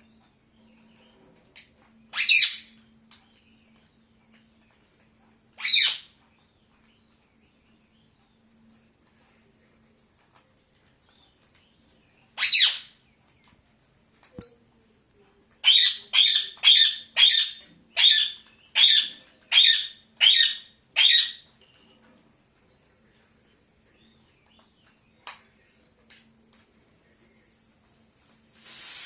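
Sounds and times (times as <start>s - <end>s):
parakeet squawking: 12.4s - 12.9s, 15.6s - 21.4s.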